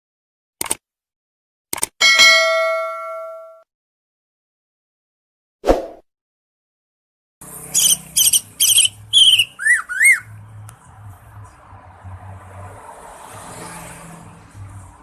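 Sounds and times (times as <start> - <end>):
bird singing high chirps: 7.8 - 10.4.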